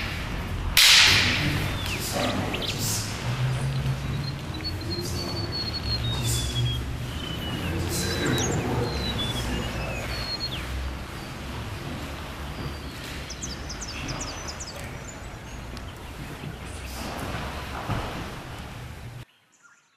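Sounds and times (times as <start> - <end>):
steady low hum: 0.0 - 19.2
whistled bird notes: 1.1 - 15.6
short high bird chirps: 4.1 - 10.7.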